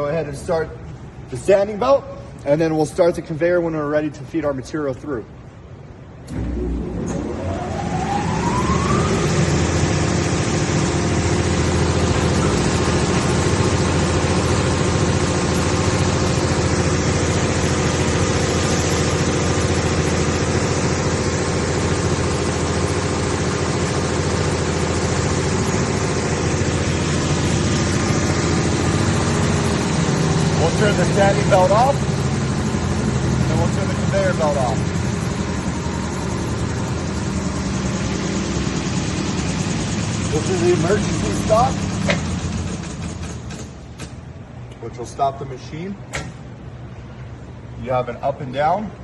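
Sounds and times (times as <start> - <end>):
metal sander whining and humming: 6.3 - 42.9.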